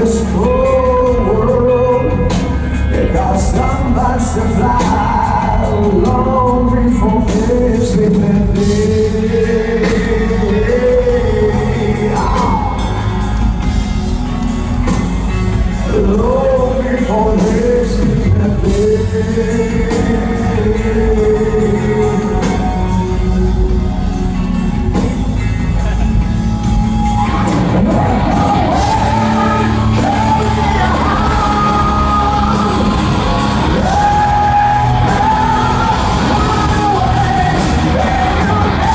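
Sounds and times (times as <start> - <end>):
live rock band playing: 0.0 - 38.9
bending lead guitar notes: 17.8 - 38.9
crowd shouting: 26.7 - 38.9.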